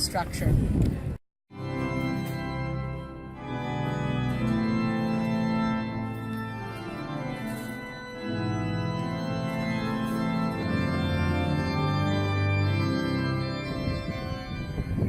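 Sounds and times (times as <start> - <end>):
organ playing sustained chords: 1.5 - 15.0.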